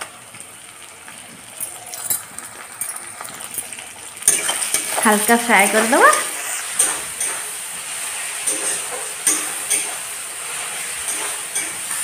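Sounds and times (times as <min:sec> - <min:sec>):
vegetables sizzling in hot oil: 0:00.0 - 0:12.0
metal spatula scraping a pan: 0:04.2 - 0:12.0.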